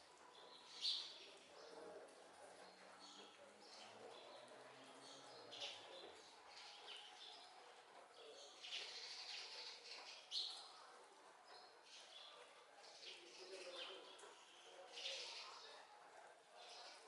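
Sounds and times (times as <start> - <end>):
small birds chirping: 8.2 - 15.8.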